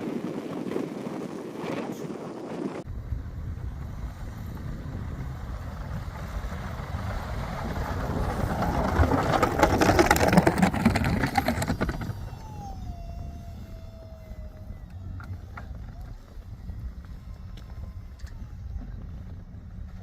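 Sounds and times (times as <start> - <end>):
rushing crackling noise: 0.0 - 12.7
vehicle engine running: 2.9 - 12.8, 13.7 - 20.0.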